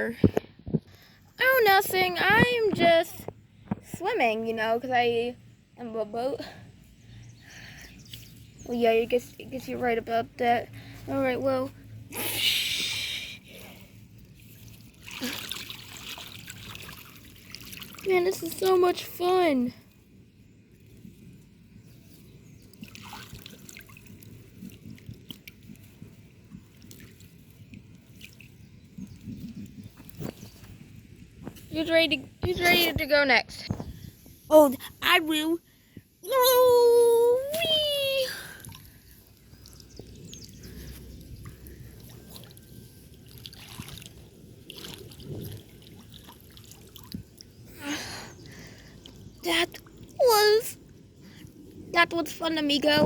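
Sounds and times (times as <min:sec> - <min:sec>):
water dripping and splashing: 0:13.8 - 0:31.8, 0:37.5 - 0:51.8.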